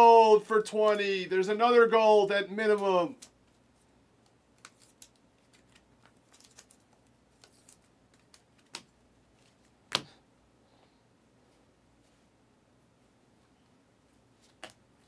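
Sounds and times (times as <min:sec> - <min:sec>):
cards clicking and rustling: 0:04.6 - 0:10.1.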